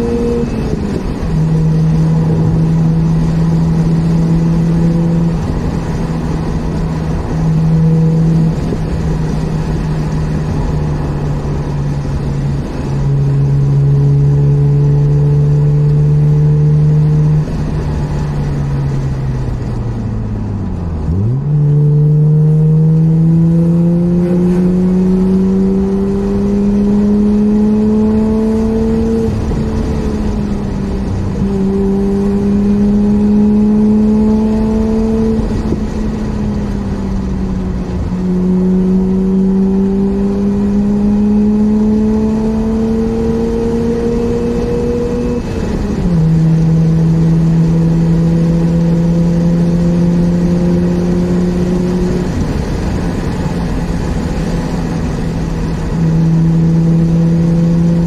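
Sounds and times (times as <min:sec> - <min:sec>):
rotary engine from inside car: 0:00.0 - 0:58.0.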